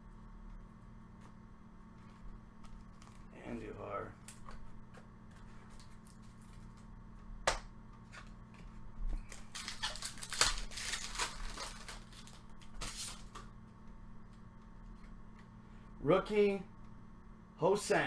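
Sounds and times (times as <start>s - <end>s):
pack wrapper crinkling and tearing: 9.3s - 13.4s.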